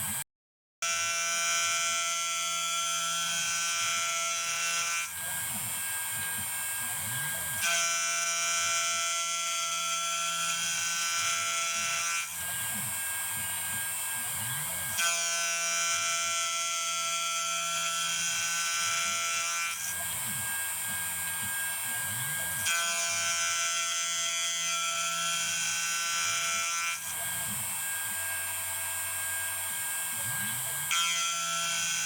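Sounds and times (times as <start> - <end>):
stepper motors whining: 26.1 - 32.0.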